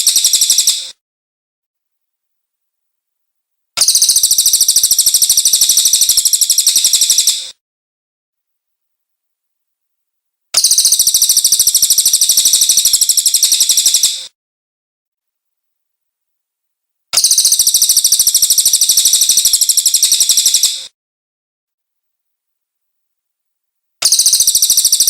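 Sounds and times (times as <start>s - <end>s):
bird high trill: 0.0s - 0.9s, 3.8s - 7.5s, 10.6s - 14.3s, 17.2s - 20.9s, 24.0s - 25.0s.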